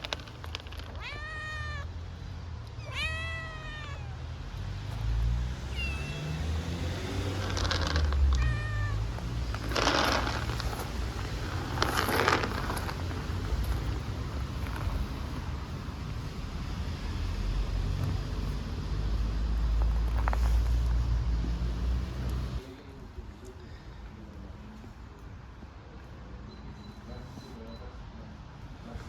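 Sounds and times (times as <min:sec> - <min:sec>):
kittens meowing: 0:00.8 - 0:02.0, 0:02.8 - 0:04.4, 0:05.7 - 0:06.8, 0:07.4 - 0:13.0.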